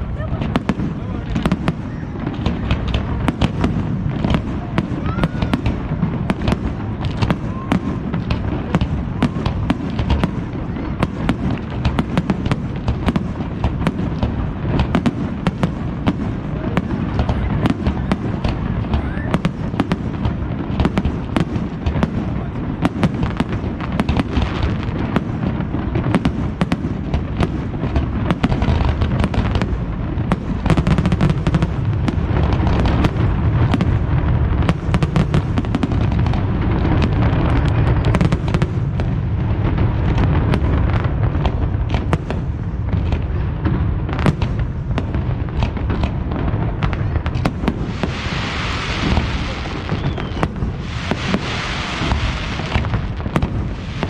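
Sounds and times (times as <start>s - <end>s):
hissing crackle: 0.0s - 54.0s
firework shells bursting: 47.3s - 54.0s.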